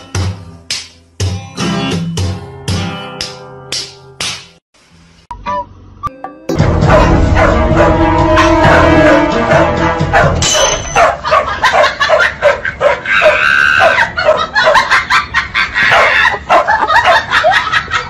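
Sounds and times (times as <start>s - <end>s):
dogs barking: 6.7s - 18.0s.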